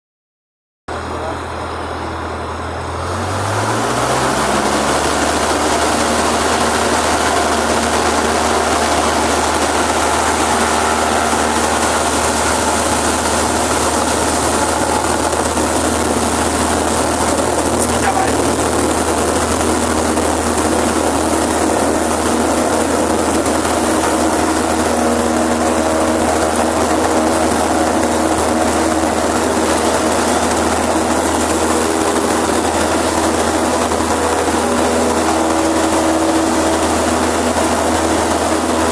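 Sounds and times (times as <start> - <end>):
airplane engine drone: 0.9 - 38.9.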